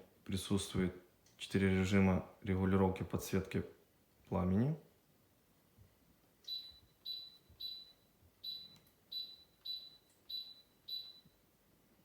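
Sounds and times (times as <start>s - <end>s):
short high-pitched beeps: 6.5s - 11.4s.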